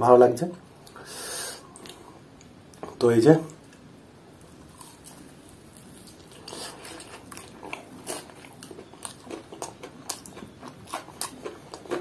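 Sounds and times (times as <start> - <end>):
crunchy chewing of fried chicken: 3.6 - 12.0.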